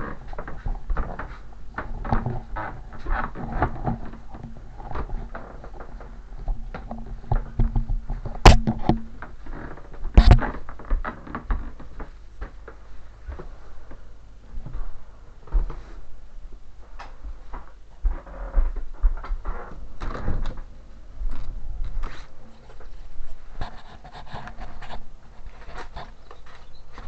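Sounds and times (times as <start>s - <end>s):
faint steady hum: 0.0s - 27.0s
clicks and knocks of handling: 0.3s - 12.8s.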